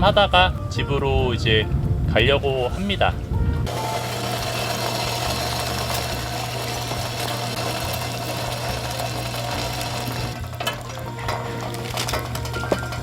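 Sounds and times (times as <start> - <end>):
small motor humming: 3.7 - 13.0.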